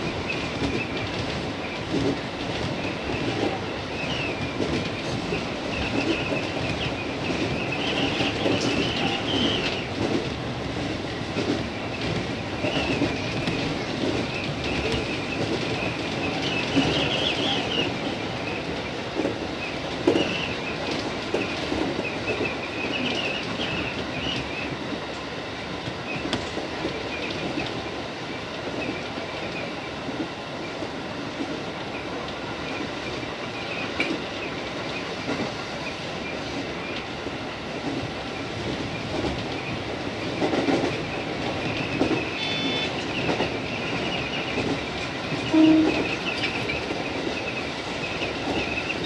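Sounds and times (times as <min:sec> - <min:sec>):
rail-joint clicks: 0:00.0 - 0:49.0
train wheels rumbling on rail: 0:00.0 - 0:49.0.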